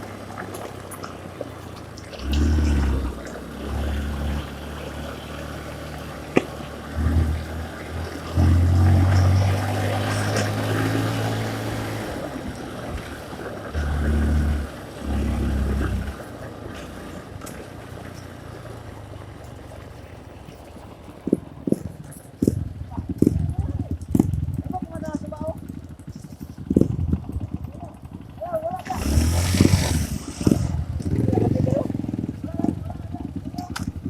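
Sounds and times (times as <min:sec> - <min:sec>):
dirt bike engine revving: 0:02.1 - 0:17.2, 0:22.4 - 0:34.0.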